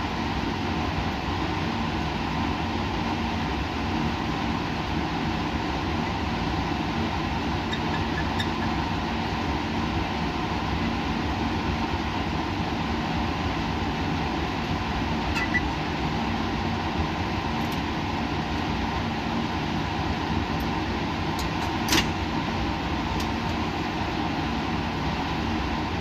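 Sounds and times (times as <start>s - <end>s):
machinery and ventilation hum: 0.0s - 26.0s.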